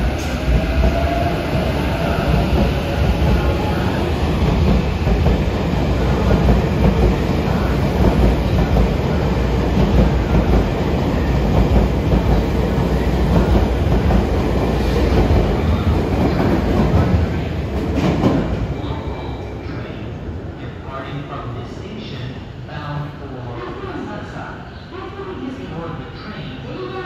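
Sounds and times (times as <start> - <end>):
train wheels on rails: 0.0 - 18.8.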